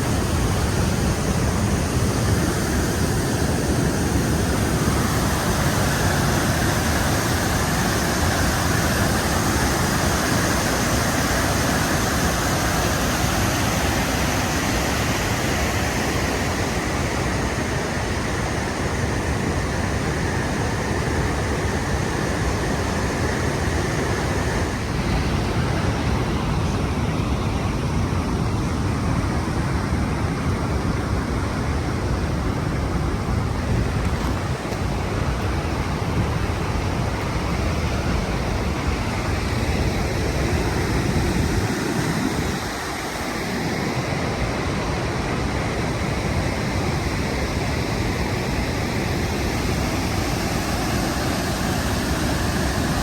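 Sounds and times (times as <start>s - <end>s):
waterfall rushing: 0.0s - 53.0s
wind buffeting microphone: 22.5s - 53.0s.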